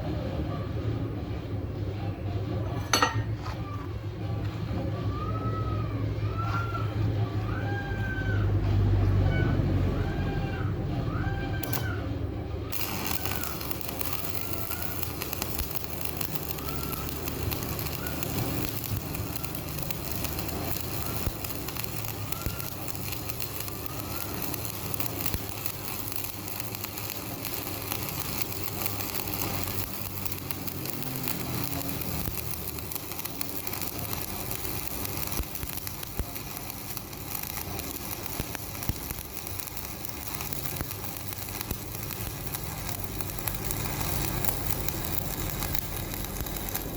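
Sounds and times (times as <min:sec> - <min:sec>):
electric welding arc crackling: 0:11.6 - 0:12.0, 0:12.7 - 0:46.9.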